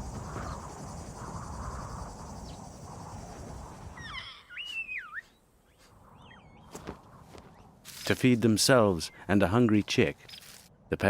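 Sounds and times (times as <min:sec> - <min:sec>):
rumbling outdoor haze: 0:00.0 - 0:04.2
bird whistled calls: 0:04.0 - 0:05.4.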